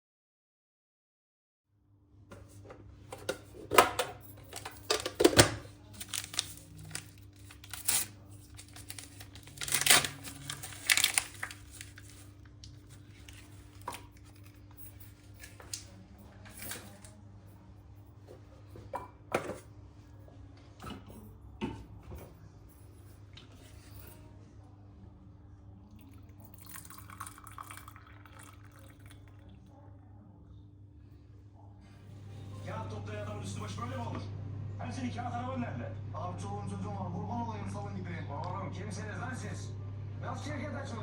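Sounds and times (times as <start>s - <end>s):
low electrical hum: 1.8s - 41.0s
packaging crinkling and ripping: 4.5s - 14.3s.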